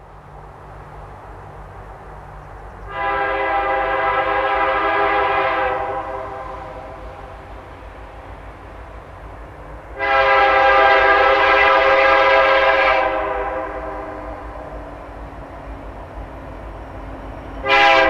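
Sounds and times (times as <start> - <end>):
diesel locomotive engine rumble: 0.0 - 18.0
locomotive air horn blast: 2.9 - 7.0, 10.0 - 14.5, 17.6 - 18.0.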